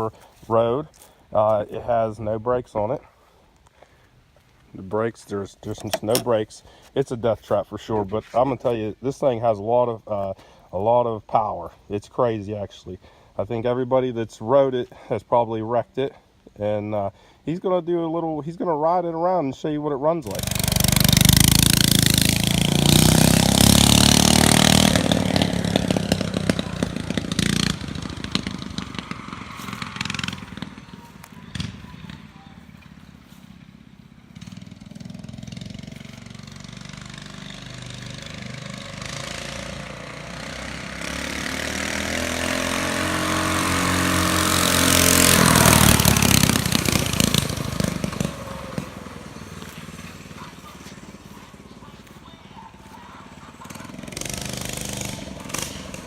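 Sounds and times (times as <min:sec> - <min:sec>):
mini bike engine revving: 0:20.2 - 0:56.0.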